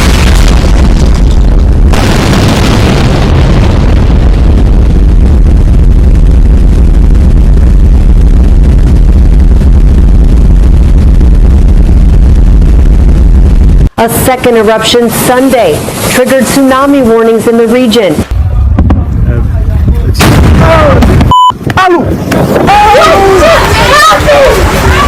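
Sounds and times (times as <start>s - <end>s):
volcanic eruption deep rumbling boom: 0.0s - 14.0s, 18.2s - 23.9s.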